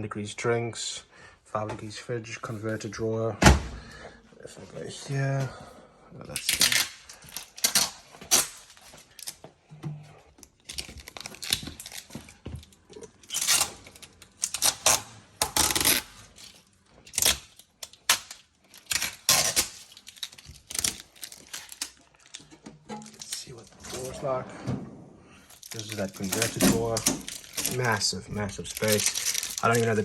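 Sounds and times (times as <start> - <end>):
plastic film crackling and tearing: 6.3 - 9.4, 10.5 - 24.2, 25.5 - 30.0.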